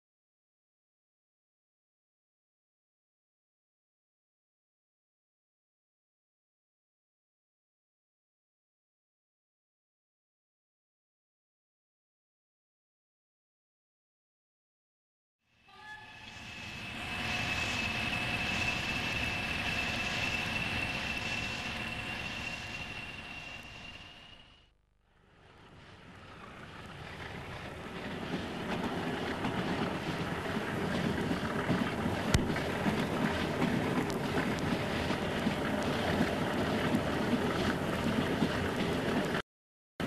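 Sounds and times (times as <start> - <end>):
train rumbling along track: 15.6 - 39.4
high whine: 15.7 - 39.3
diesel train running noise: 15.7 - 39.4.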